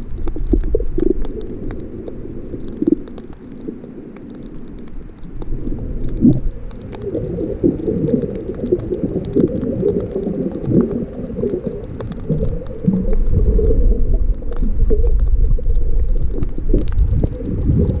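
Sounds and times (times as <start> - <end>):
wind buffeting microphone: 16.3 - 18.0.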